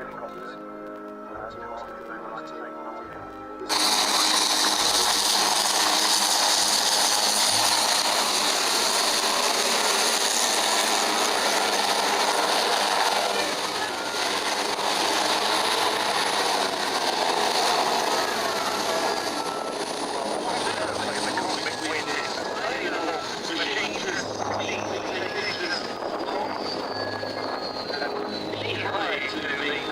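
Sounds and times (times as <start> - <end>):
aircraft rushing roar: 3.2 - 29.9.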